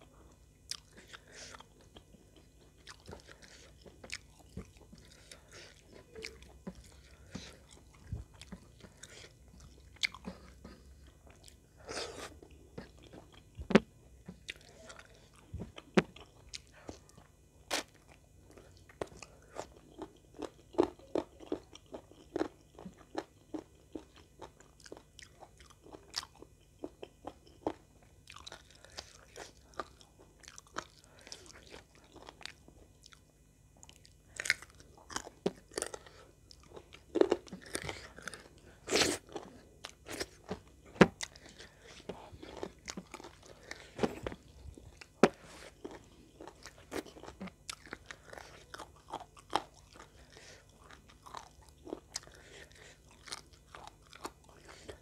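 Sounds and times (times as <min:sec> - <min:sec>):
person chewing crunchy chicken: 0:00.2 - 0:55.0.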